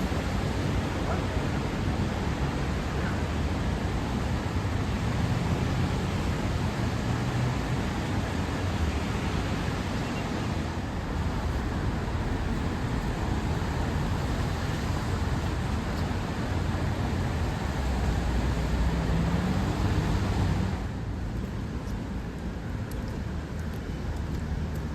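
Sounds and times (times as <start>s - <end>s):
city traffic rumble: 0.0s - 24.9s.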